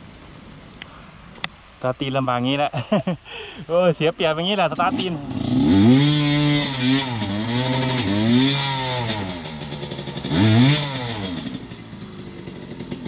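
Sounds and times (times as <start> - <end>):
dirt bike engine revving: 4.8 - 13.0.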